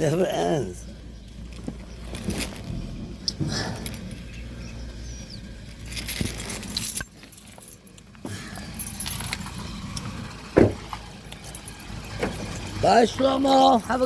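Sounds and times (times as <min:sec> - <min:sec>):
car engine idling: 0:00.0 - 0:14.0
keys jangling: 0:03.3 - 0:04.4, 0:05.8 - 0:14.0
sharp thump: 0:10.6 - 0:10.8.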